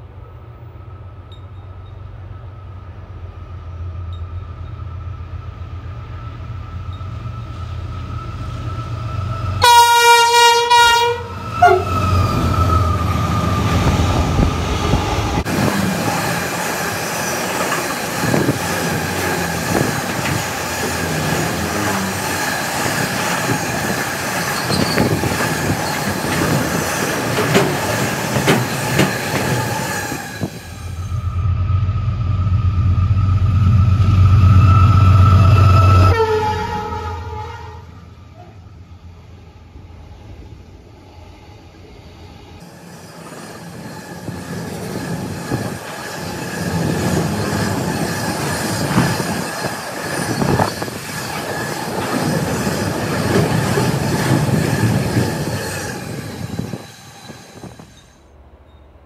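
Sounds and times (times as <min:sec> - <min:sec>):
locomotive rumble: 0:00.0 - 0:59.0
train horn blast: 0:09.6 - 0:12.1, 0:34.3 - 0:38.6
wheel squeal: 0:17.0 - 0:31.6, 0:42.6 - 0:58.9
freight wagons clattering: 0:24.5 - 0:29.7.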